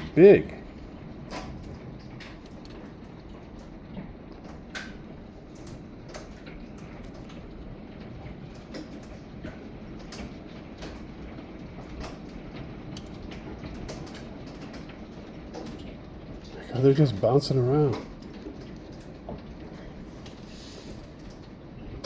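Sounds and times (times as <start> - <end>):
heavy rain hiss: 16.5 - 18.1, 19.8 - 21.2.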